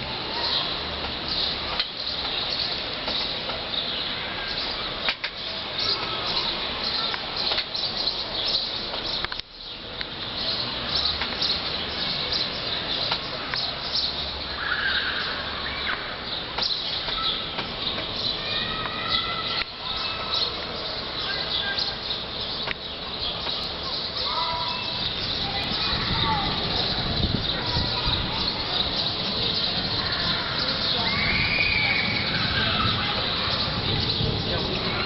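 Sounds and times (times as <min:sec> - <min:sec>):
strong wind gusting: 0:24.3 - 0:35.0
wind buffeting microphone: 0:24.7 - 0:35.0.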